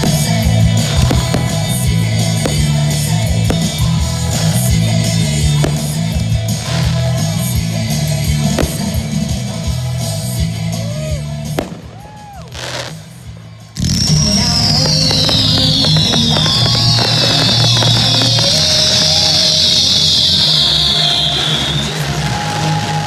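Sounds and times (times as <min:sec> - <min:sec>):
firework whistles: 0:00.0 - 0:07.4, 0:13.7 - 0:23.0
firework cracks: 0:00.0 - 0:09.7, 0:11.5 - 0:23.0
rock music with singing: 0:00.0 - 0:23.0.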